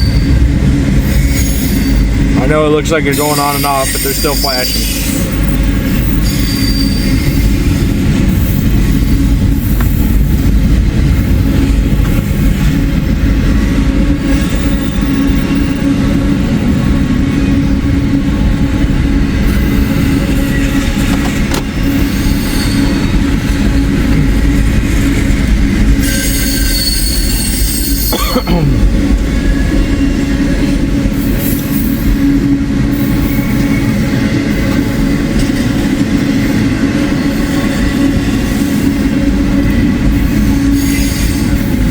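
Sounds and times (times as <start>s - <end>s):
train wheel squeal: 0.0s - 2.3s, 3.0s - 15.9s, 19.4s - 28.4s, 29.3s - 41.9s
steel wheels rumbling on rail: 0.0s - 41.9s.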